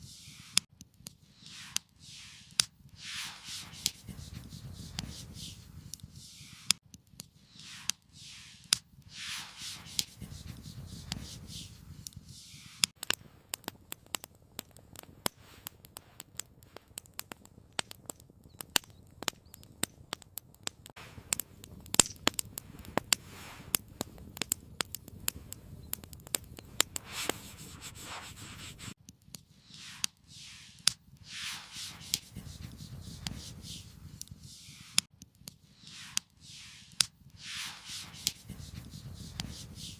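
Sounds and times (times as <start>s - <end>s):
swishing scraping sounds: 0.0s - 0.6s, 1.3s - 6.8s, 7.4s - 12.9s, 27.0s - 29.0s, 29.6s - 35.1s, 35.7s - 39.9s
campfire crackling and popping: 0.3s - 39.9s.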